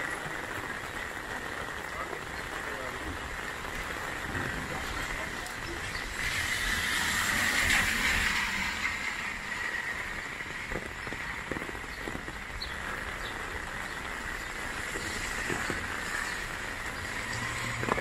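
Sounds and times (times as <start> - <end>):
car tyres hissing on wet road: 0.0 - 18.0
heavy rain on umbrella: 0.0 - 18.0
rain on wet pavement: 0.0 - 18.0
heavy drops striking umbrella: 10.7 - 12.7.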